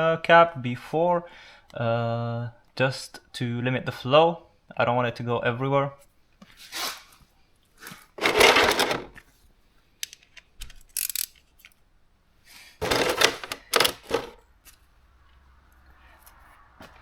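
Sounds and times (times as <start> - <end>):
metal tools clattering: 8.2 - 9.2, 12.8 - 14.4.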